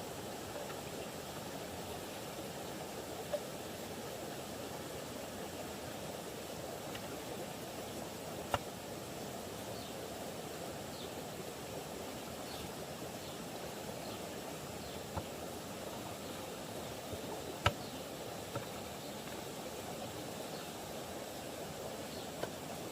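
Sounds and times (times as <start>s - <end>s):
steady background noise: 0.0s - 22.9s.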